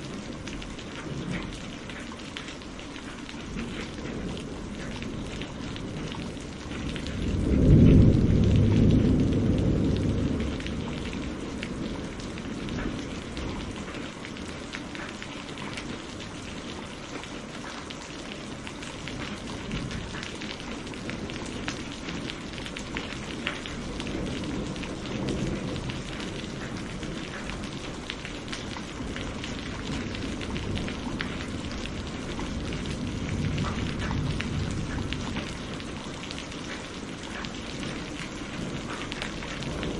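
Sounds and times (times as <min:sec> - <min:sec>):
steady rain: 0:00.0 - 0:39.9
thunder rolling: 0:05.9 - 0:13.8, 0:28.7 - 0:36.2.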